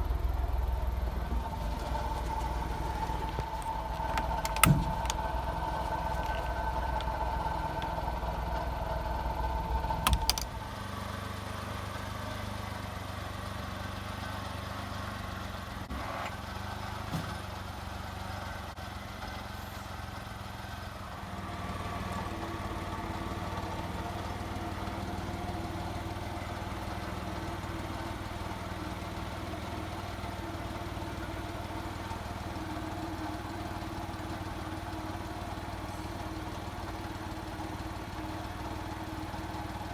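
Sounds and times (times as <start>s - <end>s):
truck engine idling: 0.0s - 39.9s
sharp clicks: 1.8s - 8.0s, 9.9s - 10.5s.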